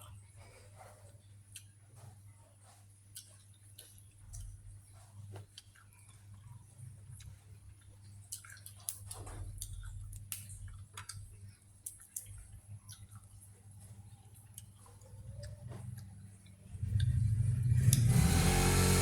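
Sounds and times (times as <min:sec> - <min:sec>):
person chewing and smacking: 0:00.0 - 0:18.0
steady low hum: 0:09.1 - 0:19.0.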